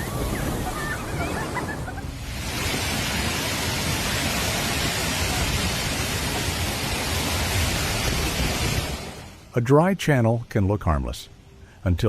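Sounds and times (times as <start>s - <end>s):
floodwater roaring: 0.0s - 9.5s.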